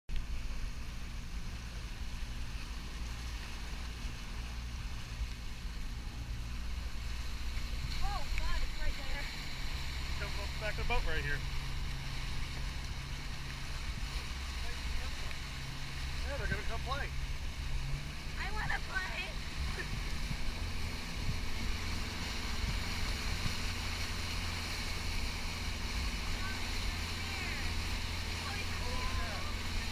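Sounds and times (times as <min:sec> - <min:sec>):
motorboat engine humming: 0:00.1 - 0:29.9
water rushing past hull: 0:00.1 - 0:29.9
wind noise on microphone: 0:19.4 - 0:27.0.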